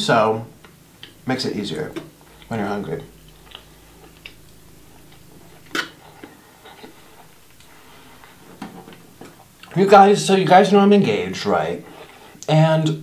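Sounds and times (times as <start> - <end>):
crunchy chewing: 1.9 - 9.8.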